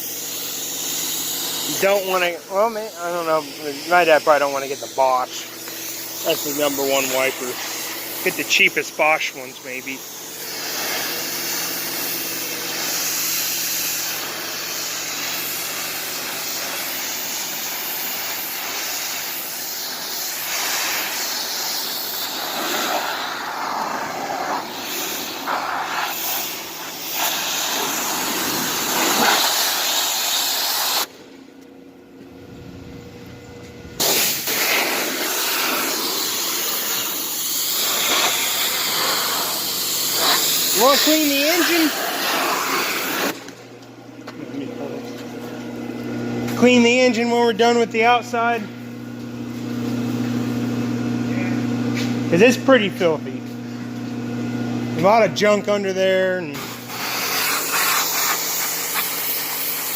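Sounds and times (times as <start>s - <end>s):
pressure washer jet spraying water: 0.0s - 31.2s, 34.0s - 43.7s, 56.6s - 59.9s.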